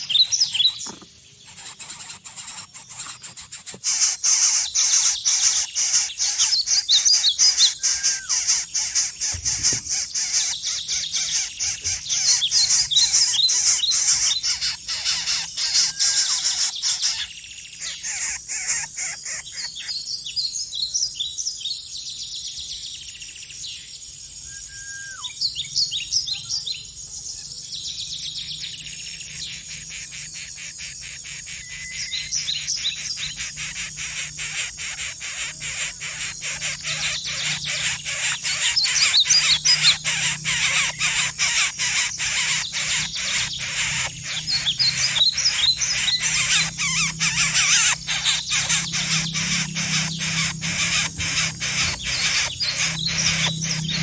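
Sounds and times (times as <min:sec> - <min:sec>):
bird chirps and trills: 0:00.0 - 0:54.0
fast rasping pulse: 0:36.6 - 0:54.0.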